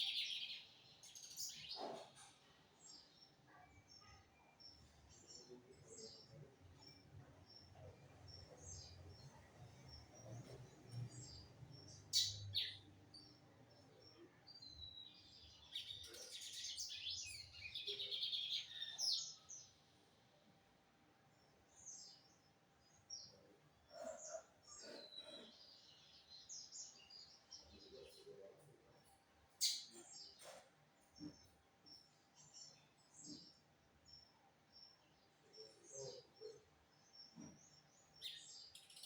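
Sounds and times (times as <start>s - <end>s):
bird chips and twittering song: 0.0s - 2.4s, 10.2s - 13.3s, 14.6s - 19.7s, 29.5s - 30.5s, 35.7s - 39.0s.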